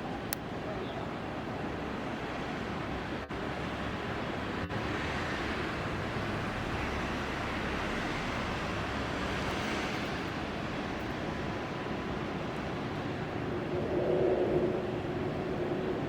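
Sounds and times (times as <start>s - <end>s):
jet engines roaring: 3.4s - 16.0s.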